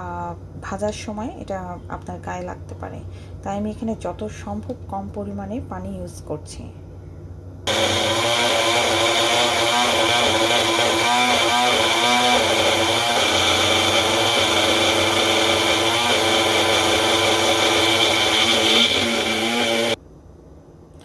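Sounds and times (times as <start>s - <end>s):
electric blender grinding: 7.7s - 20.0s.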